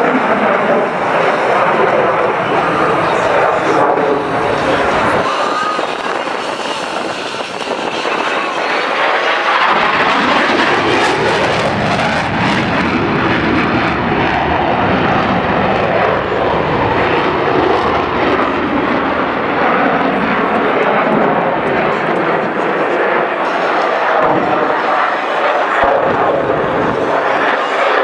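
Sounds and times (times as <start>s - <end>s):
airplane engines roaring: 0.0s - 28.0s.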